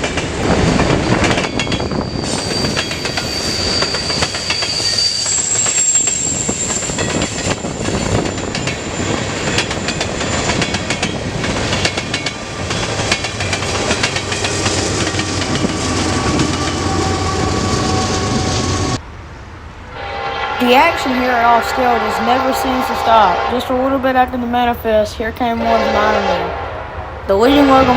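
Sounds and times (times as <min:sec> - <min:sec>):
train wheels clacking on rail joints: 0:00.0 - 0:18.5
wheel squeal: 0:01.3 - 0:19.0.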